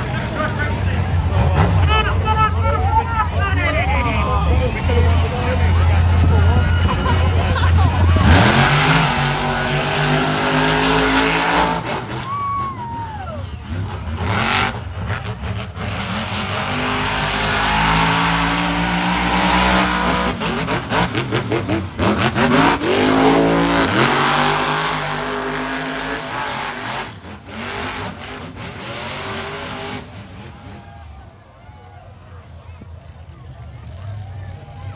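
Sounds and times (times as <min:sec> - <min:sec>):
truck engine revving hard: 0:00.0 - 0:31.3.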